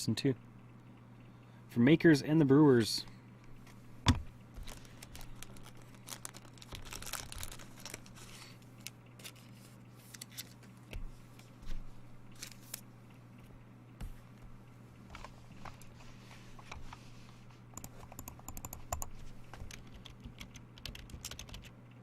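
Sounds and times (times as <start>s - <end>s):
card wrappers tearing and crinkling: 4.6s - 10.7s
cards rustling and clicking: 4.6s - 11.8s, 12.4s - 12.9s.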